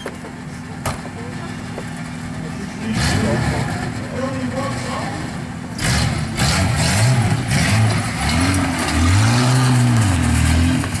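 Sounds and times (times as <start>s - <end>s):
car engine revving: 2.4s - 11.0s.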